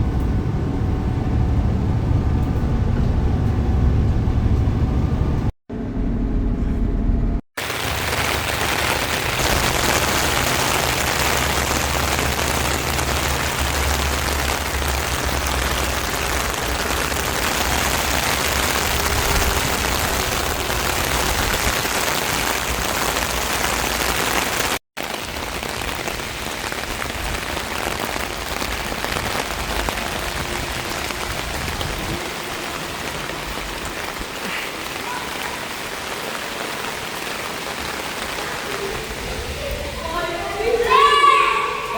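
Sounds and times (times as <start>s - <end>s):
low engine hum: 0.0s - 7.4s
water and wind rushing: 7.6s - 41.9s.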